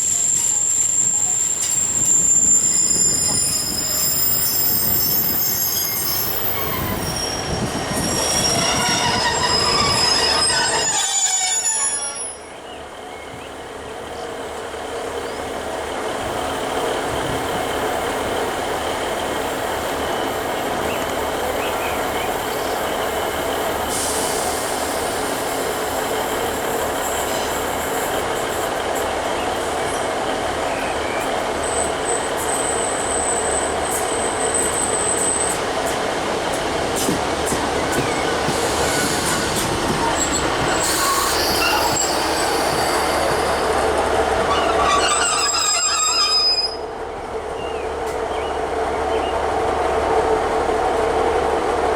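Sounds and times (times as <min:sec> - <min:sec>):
wheel squeal on rails: 0:00.0 - 0:12.6, 0:37.0 - 0:46.9
train rumble: 0:00.0 - 0:51.9.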